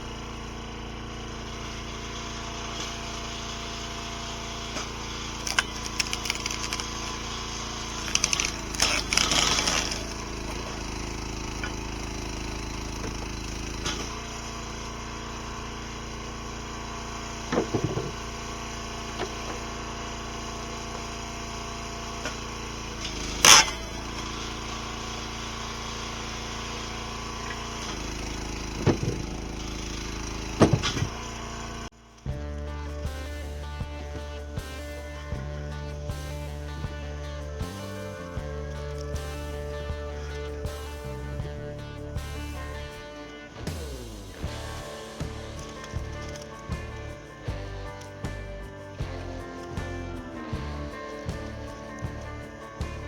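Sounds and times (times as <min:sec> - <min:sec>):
log splitter engine running: 0:00.0 - 0:53.0
wood cracking and splintering: 0:04.8 - 0:14.3.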